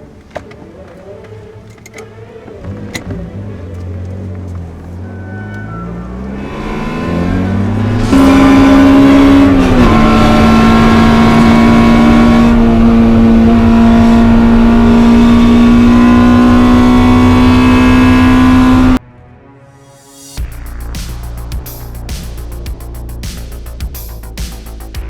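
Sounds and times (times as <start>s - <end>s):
car engine revving high: 2.7s - 19.0s.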